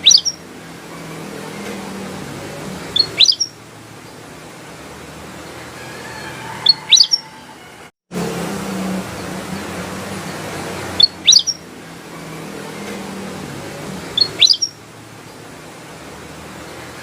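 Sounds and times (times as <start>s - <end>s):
bulbul chirping: 0.0s - 0.4s, 2.9s - 3.6s, 6.7s - 7.2s, 11.0s - 11.6s, 14.1s - 14.8s.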